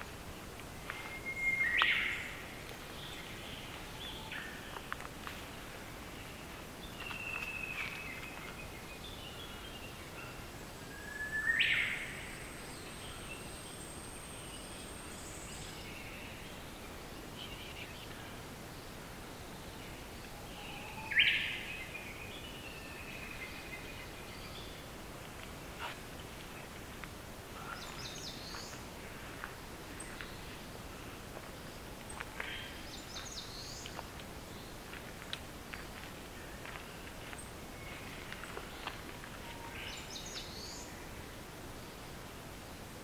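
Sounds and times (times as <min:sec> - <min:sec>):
background hiss: 0:00.0 - 0:43.0
thrush whistled song: 0:00.9 - 0:02.3, 0:10.9 - 0:12.1.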